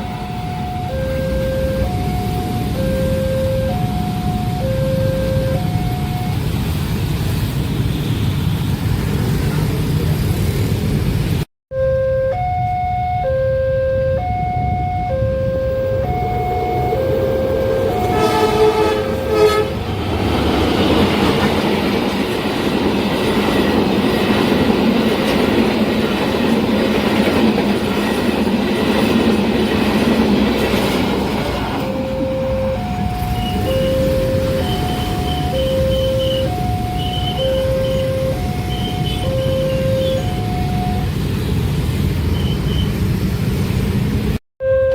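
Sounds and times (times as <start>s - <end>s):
two-tone crossing signal: 0.0s - 6.8s, 11.7s - 19.8s, 31.3s - 41.2s, 44.6s - 44.9s
train horn blasts: 13.5s - 19.9s
train wheels on rails: 16.0s - 44.3s.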